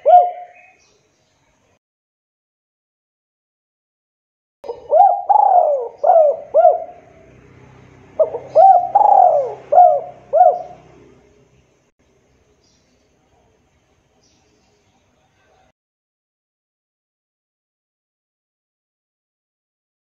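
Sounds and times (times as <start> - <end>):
dove cooing: 0.0 - 0.7, 4.7 - 7.3, 8.1 - 11.3.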